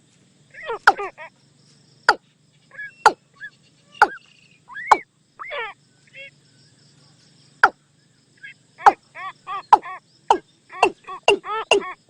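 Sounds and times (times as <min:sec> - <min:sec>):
watercock calls: 0:00.6 - 0:01.2, 0:02.1 - 0:05.8, 0:08.8 - 0:12.0.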